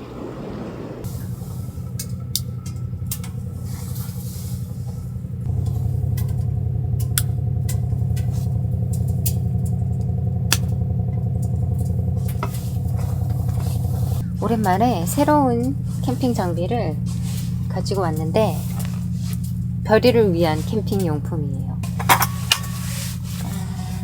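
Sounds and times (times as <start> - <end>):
small motor humming: 0.0 - 24.0
sharp ticks: 5.4 - 12.9.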